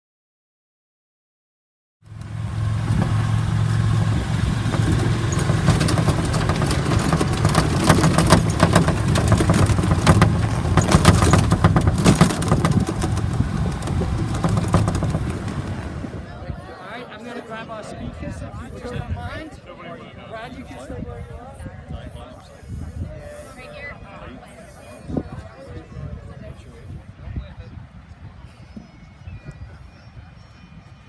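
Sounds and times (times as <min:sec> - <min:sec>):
vehicle engine humming: 0:02.0 - 0:16.3
rattling and clicking: 0:02.1 - 0:16.0.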